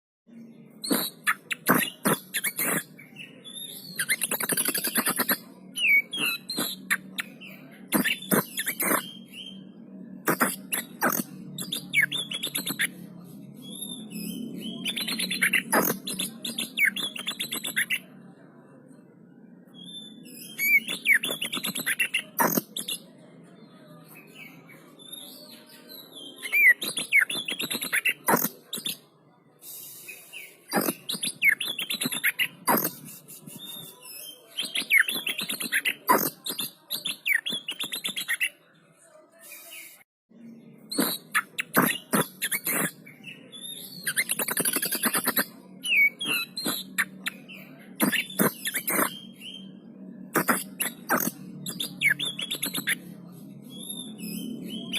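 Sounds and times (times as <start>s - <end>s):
bird singing squeaky notes: 0.8s - 2.9s, 3.8s - 9.6s, 20.4s - 23.1s, 40.9s - 43.0s, 50.4s - 53.0s
bird singing whistled notes: 50.4s - 53.0s.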